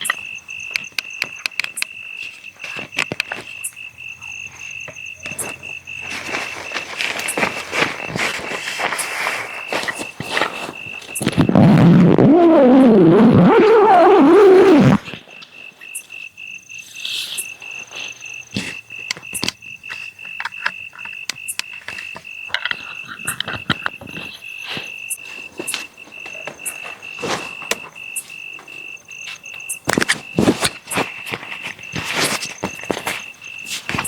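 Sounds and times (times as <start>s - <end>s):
cricket trilling: 0.0s - 34.0s.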